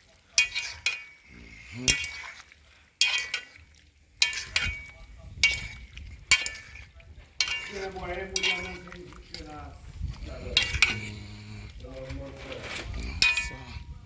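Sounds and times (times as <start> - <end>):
metal spoon clinking in pot: 0.3 - 1.3, 3.0 - 9.6, 10.4 - 11.4, 13.1 - 13.9.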